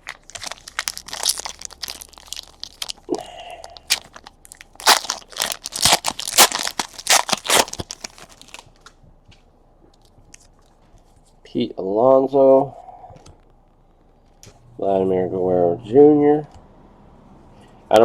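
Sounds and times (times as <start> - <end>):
foil wrappers tearing and crinkling: 0.0 - 8.7.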